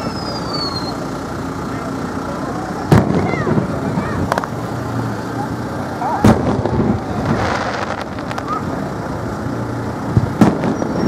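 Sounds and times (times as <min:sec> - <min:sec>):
firework shells bursting: 0:06.2 - 0:09.0, 0:10.1 - 0:11.0.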